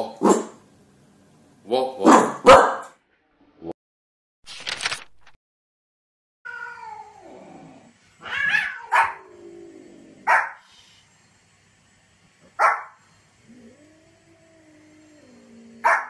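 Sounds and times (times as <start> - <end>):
dog barking: 0.2 - 0.6, 2.0 - 3.0, 8.6 - 9.2, 10.2 - 10.6, 12.6 - 13.0, 15.8 - 16.0.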